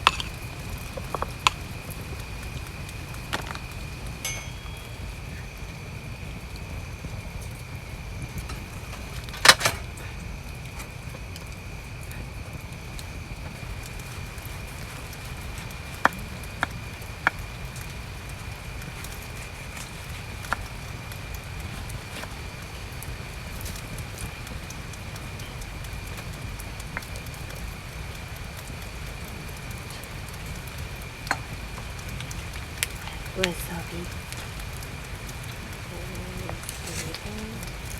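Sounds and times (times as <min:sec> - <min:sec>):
steady rain: 0:00.0 - 0:37.9.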